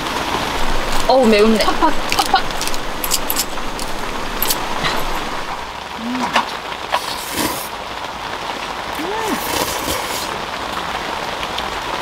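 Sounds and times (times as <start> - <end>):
rain on a camping shelter: 0.0 - 12.0.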